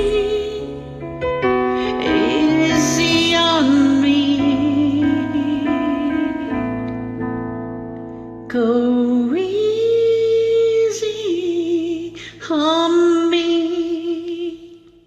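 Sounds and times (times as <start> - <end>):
woman singing ballad: 0.0 - 1.0, 1.6 - 6.9, 8.5 - 15.0
sustained piano chord: 0.0 - 9.6.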